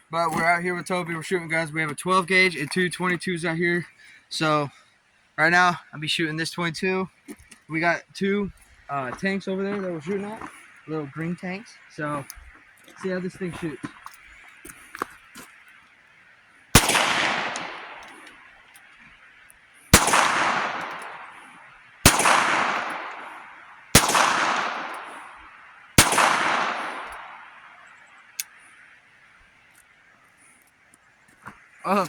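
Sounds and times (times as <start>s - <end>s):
revolver shots echoing: 16.8s - 18.4s, 20.0s - 21.5s, 22.1s - 27.8s.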